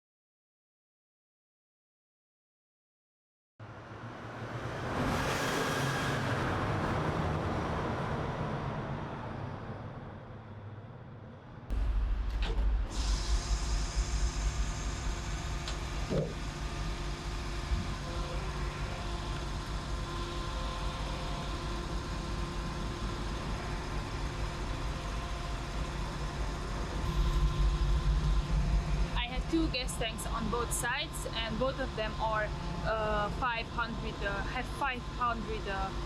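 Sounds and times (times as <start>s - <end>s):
diesel truck engine running: 11.7s - 36.0s.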